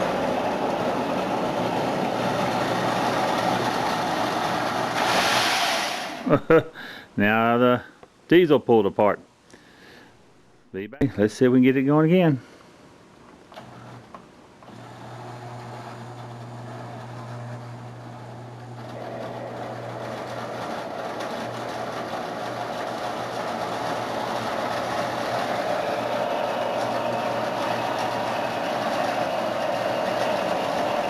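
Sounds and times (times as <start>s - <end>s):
model train electric hum: 0.0s - 6.5s, 13.5s - 31.0s.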